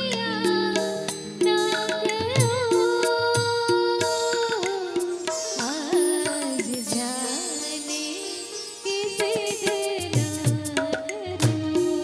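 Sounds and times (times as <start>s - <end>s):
hand drum strokes: 9.2s - 12.0s.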